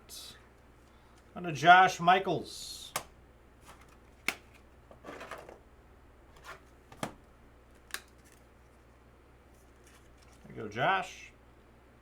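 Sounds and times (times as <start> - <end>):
cards clicking and tapping: 3.7 - 4.6.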